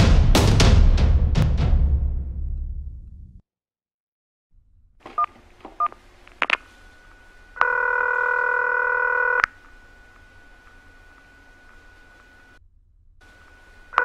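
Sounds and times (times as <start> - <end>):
loud phone tone: 7.0 - 12.6, 13.3 - 14.0
faint steady tone: 13.2 - 14.0.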